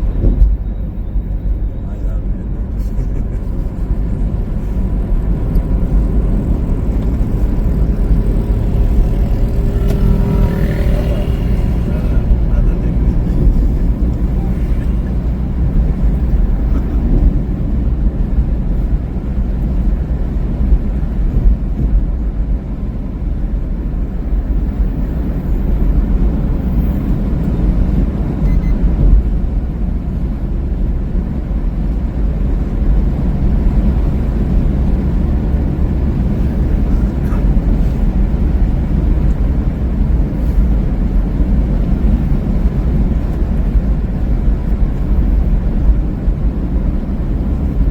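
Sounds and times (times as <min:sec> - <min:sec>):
vehicle rumble on highway: 0:00.0 - 0:47.9.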